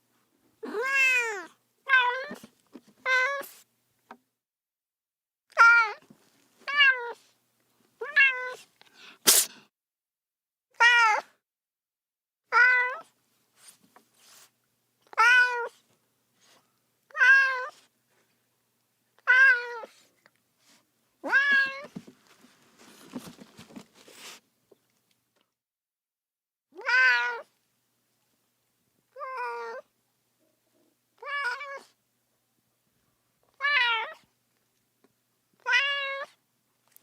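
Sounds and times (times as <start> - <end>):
soft rustling: 21.5 - 25.0.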